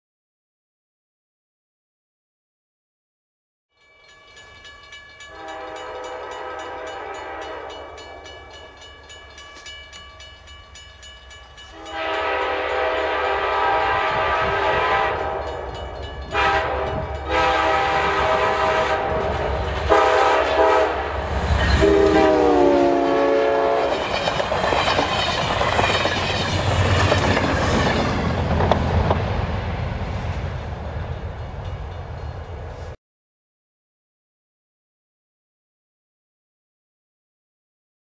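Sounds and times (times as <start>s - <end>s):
train rumble: 4.3s - 33.0s
locomotive air horn blasts: 5.3s - 8.2s, 11.7s - 24.0s.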